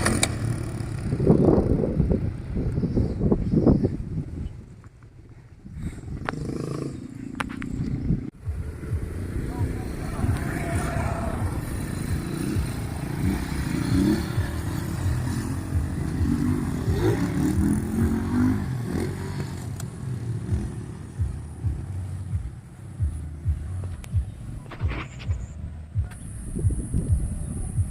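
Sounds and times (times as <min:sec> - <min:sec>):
motorcycle engine running: 0:00.0 - 0:04.6, 0:05.2 - 0:27.9.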